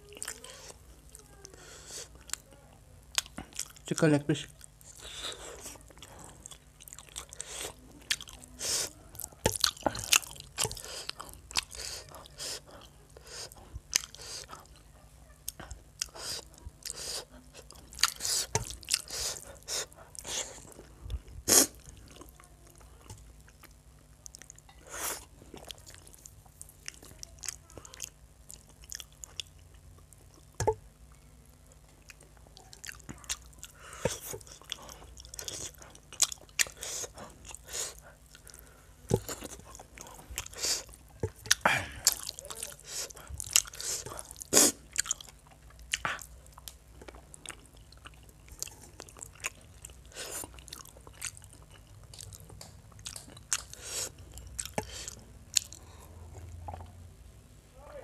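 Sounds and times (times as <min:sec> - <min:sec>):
wet chewing mouth clicks: 0:32.0 - 0:57.0.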